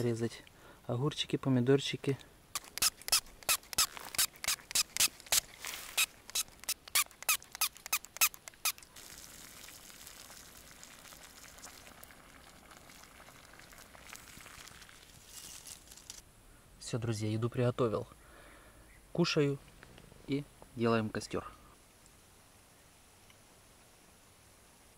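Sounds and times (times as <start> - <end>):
faint steady hiss: 0.0 - 24.9.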